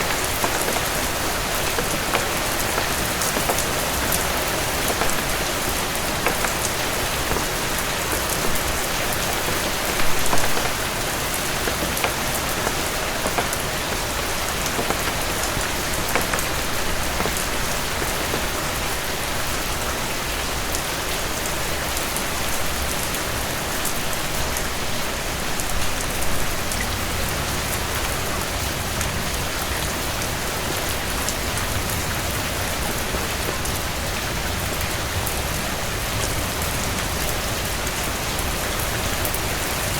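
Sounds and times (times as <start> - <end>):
sharp clicks: 0.0 - 18.7
heavy rain falling: 0.0 - 39.9.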